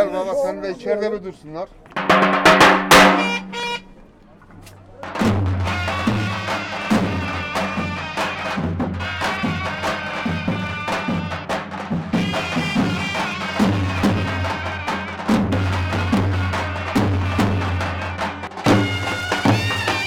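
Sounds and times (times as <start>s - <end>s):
deep drum beating: 1.9s - 3.8s, 4.9s - 20.0s
reedy wind melody: 1.9s - 4.6s.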